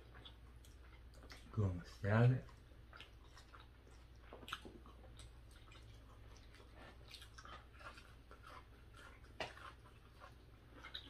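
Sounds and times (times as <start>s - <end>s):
people chewing with mouth clicks: 0.0s - 11.0s.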